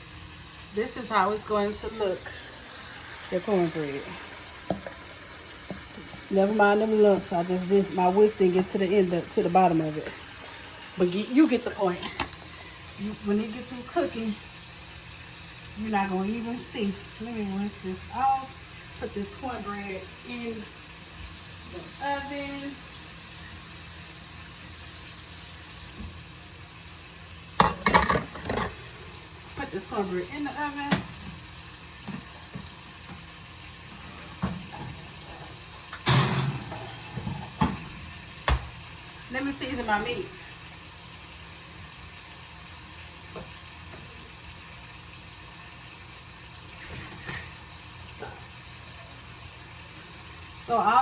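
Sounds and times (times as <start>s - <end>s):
meat sizzling in a frying pan: 0.0s - 51.0s
cookware clattering: 11.9s - 12.4s, 27.6s - 28.9s, 34.3s - 37.9s.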